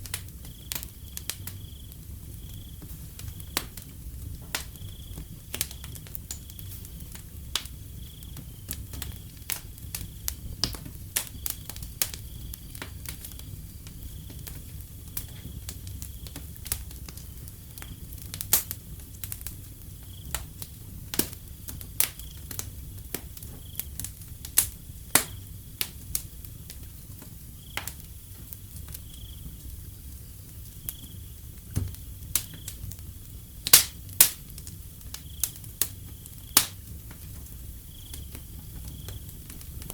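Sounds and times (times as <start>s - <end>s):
cricket chirping: 0.0s - 3.6s, 4.6s - 10.3s, 11.2s - 16.5s, 19.9s - 20.4s, 22.1s - 24.1s, 27.5s - 33.5s, 35.0s - 36.8s, 37.4s - 39.9s
wood fire crackling and popping: 0.0s - 39.9s.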